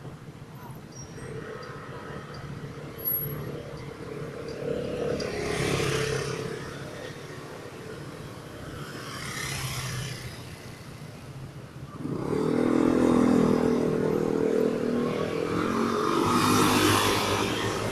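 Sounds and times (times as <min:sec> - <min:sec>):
street traffic: 0:00.0 - 0:17.9.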